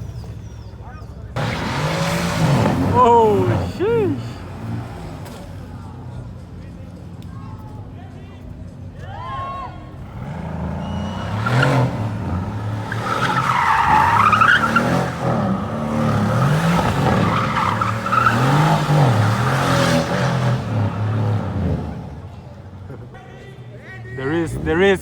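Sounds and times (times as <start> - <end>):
tyres squealing and skidding: 0.0 - 23.3
car engine revving: 1.3 - 7.7, 9.8 - 23.2.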